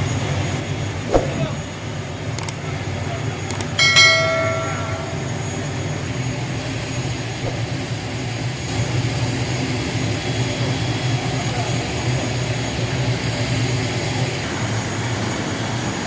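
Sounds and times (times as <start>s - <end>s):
turboprop engines droning: 0.0s - 16.0s
metallic clang: 3.8s - 5.6s.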